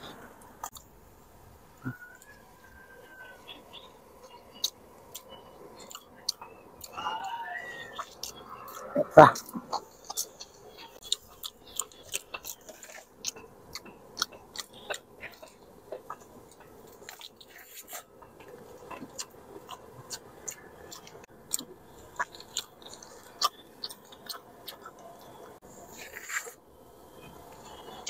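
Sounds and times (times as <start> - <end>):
person chewing with smacking clicks: 4.2 - 7.0, 8.0 - 26.5.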